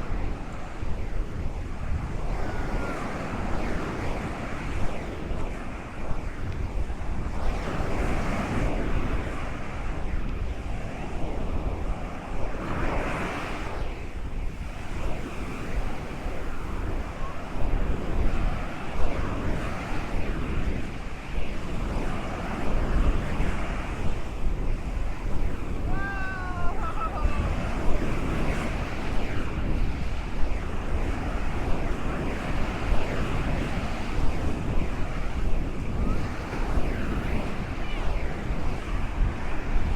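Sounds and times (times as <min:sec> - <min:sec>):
wind rumbling on microphone: 0:00.0 - 0:39.9
ocean waves breaking: 0:14.6 - 0:39.9.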